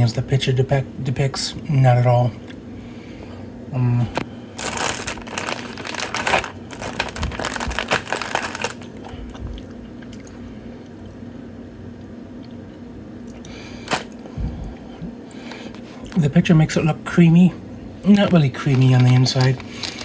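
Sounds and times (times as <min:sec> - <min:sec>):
steady low hum: 0:00.0 - 0:20.0
chewing and crunching cookie: 0:03.9 - 0:11.3, 0:12.0 - 0:16.5, 0:18.0 - 0:20.0.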